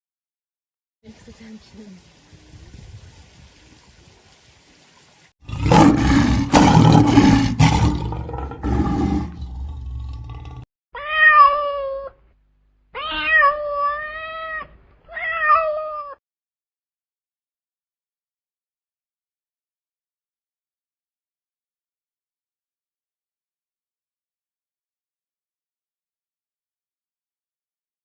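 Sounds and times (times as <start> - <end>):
rough noisy animal sound: 5.0 - 10.7
cat meowing: 11.0 - 12.2, 13.0 - 16.2.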